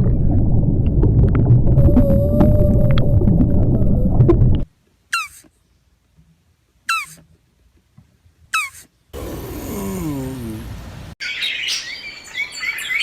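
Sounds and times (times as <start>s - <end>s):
loud low rumbling: 0.0s - 4.6s
animal squeaky calls: 5.1s - 5.5s, 6.9s - 7.2s, 8.5s - 8.9s.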